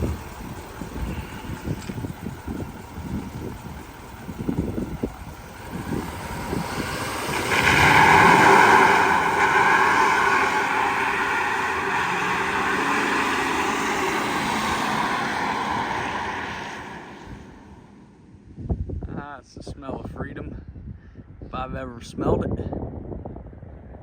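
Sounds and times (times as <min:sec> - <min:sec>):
truck engine revving hard: 0:00.0 - 0:18.2
tires spinning on pavement: 0:00.0 - 0:18.5.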